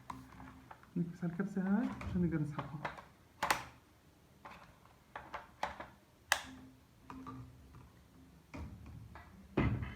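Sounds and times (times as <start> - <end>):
plastic clicks and knocks: 1.8 - 3.8, 4.4 - 7.9.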